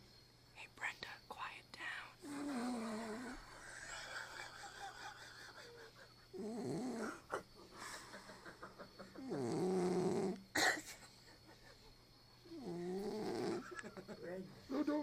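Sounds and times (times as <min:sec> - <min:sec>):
dog snorting: 0:02.2 - 0:04.4, 0:06.4 - 0:07.4, 0:09.2 - 0:10.4, 0:12.5 - 0:13.8
dog snoring: 0:02.2 - 0:05.6, 0:06.3 - 0:07.5, 0:09.2 - 0:10.6, 0:12.4 - 0:13.8.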